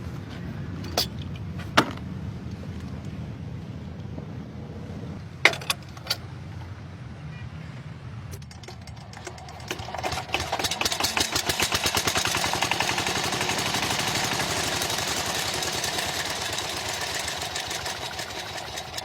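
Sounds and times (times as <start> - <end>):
sharp clicks and knocks: 8.3 - 12.3.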